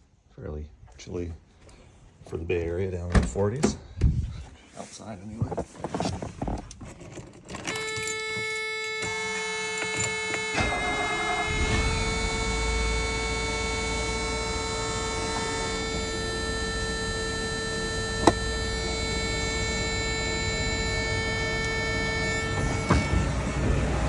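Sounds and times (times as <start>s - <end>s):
steady whine: 7.7s - 24.0s
car engine idling: 9.0s - 24.0s
click: 14.4s - 23.2s.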